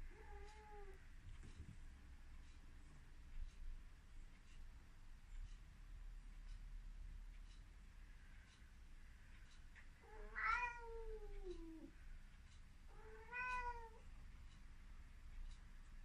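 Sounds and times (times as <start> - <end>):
cat meowing: 10.0 - 11.9, 12.9 - 14.0.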